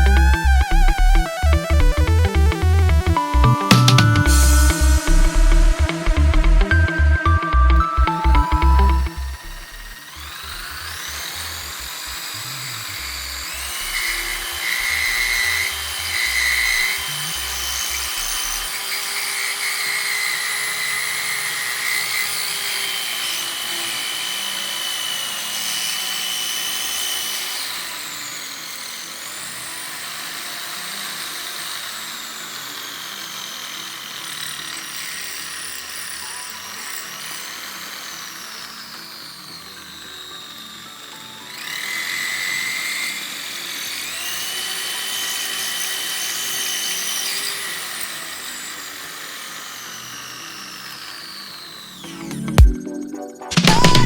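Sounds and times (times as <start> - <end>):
background music: 0.0 - 10.9, 52.0 - 54.0
electric drill motor whine: 4.3 - 52.7.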